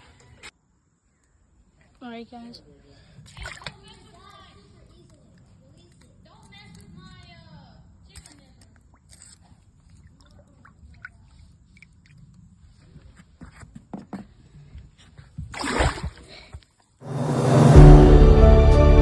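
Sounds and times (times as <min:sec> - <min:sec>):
short rush of noise: 0:17.0 - 0:18.7
background music: 0:17.0 - 0:19.0.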